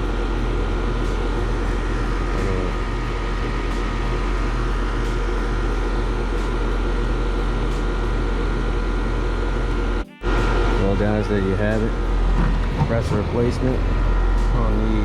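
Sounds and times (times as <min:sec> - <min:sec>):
fan whoosh: 0:00.0 - 0:08.9
air conditioner compressor hum: 0:00.0 - 0:15.0.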